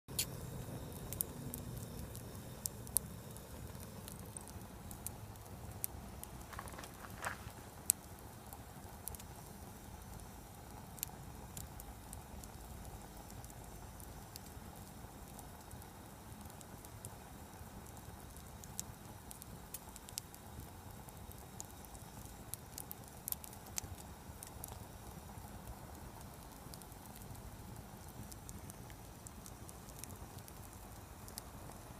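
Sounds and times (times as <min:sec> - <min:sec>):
wood fire crackling and popping: 0:00.1 - 0:31.9
low steady rumble: 0:00.2 - 0:31.9.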